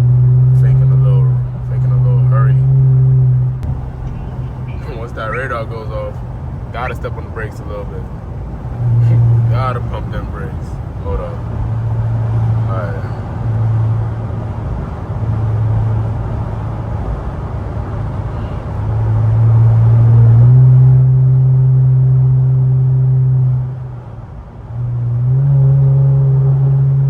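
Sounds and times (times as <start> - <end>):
car exhaust drone: 0.0 - 27.0.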